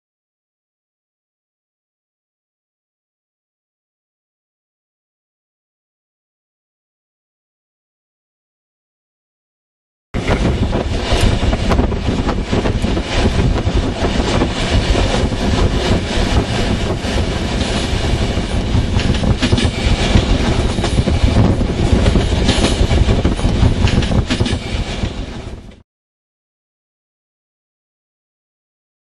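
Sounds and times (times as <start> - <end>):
train rolling on rails: 10.2 - 25.8.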